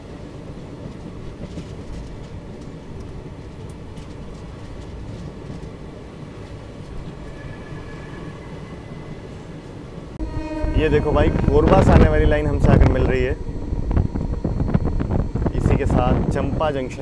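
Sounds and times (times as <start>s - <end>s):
train wheels rumbling on rails: 0.0s - 17.0s
rushing air: 7.0s - 16.8s.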